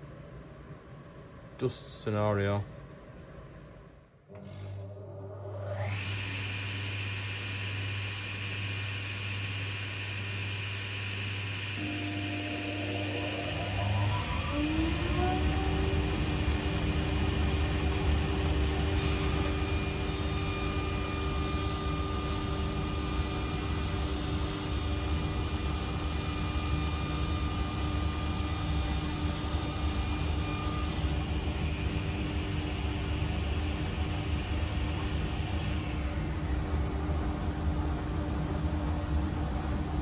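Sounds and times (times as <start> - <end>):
table saw running: 11.7 - 29.0.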